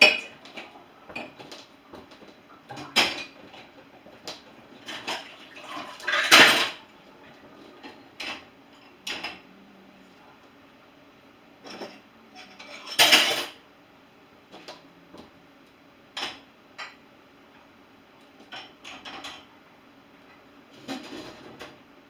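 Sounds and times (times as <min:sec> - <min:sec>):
dishes and cutlery clattering: 0:00.0 - 0:06.8, 0:11.6 - 0:13.6, 0:18.4 - 0:19.5.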